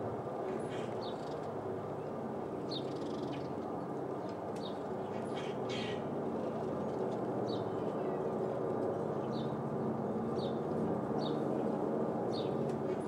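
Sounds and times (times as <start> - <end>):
bird calling: 5.3 - 6.0.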